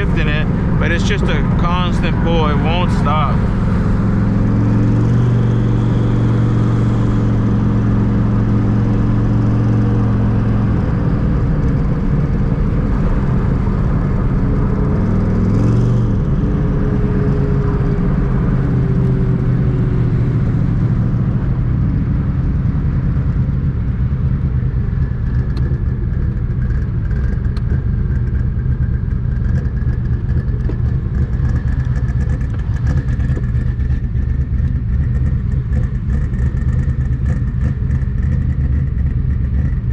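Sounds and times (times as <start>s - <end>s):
car engine droning while driving: 0.0s - 39.9s.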